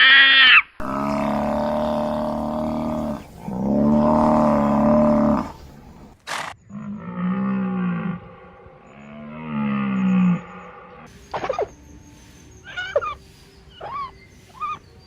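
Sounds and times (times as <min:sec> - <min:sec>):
animal pitched calls: 0:12.6 - 0:14.8.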